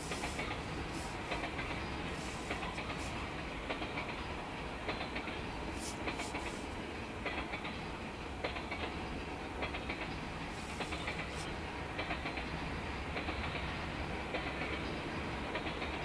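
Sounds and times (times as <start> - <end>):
freight train rumbling past: 0.0 - 16.0
wheels clicking over rail joints: 0.0 - 16.0.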